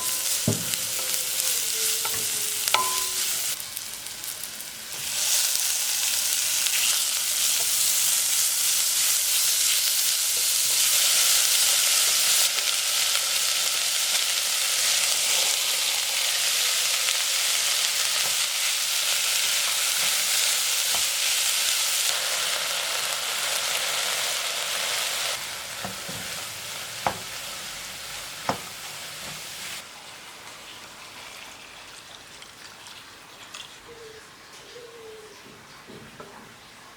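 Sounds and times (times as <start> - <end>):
food sizzling in a pan: 0.0 - 29.8.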